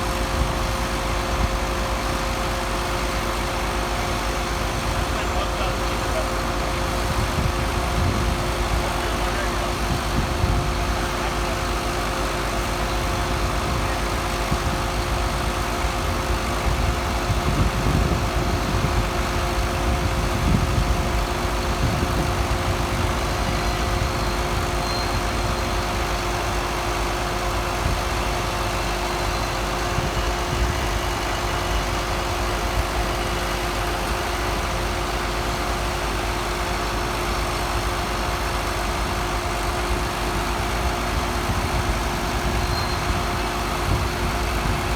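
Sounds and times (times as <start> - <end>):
engine idling: 0.0 - 44.9.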